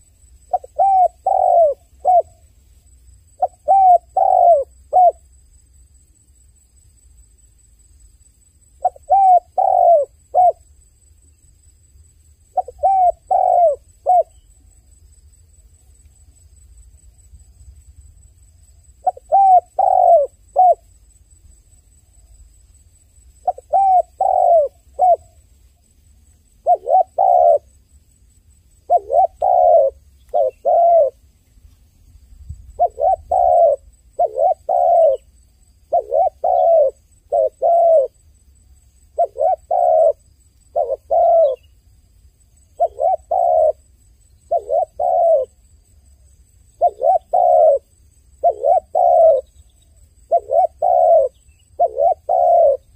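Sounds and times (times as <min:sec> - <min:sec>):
dove cooing: 0:00.0 - 0:02.4, 0:03.4 - 0:05.2, 0:08.8 - 0:10.6, 0:12.5 - 0:14.5, 0:19.0 - 0:20.8, 0:23.4 - 0:25.4, 0:26.6 - 0:27.8, 0:28.8 - 0:31.2, 0:32.7 - 0:38.2, 0:39.1 - 0:41.7, 0:42.8 - 0:45.6, 0:46.8 - 0:52.9.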